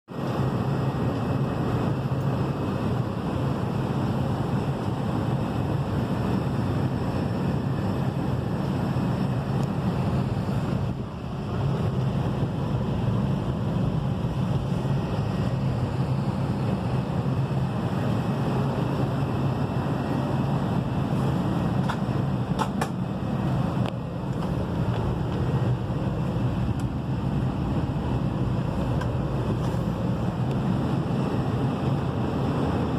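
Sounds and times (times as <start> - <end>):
aircraft cabin rumble: 0.1 - 32.9.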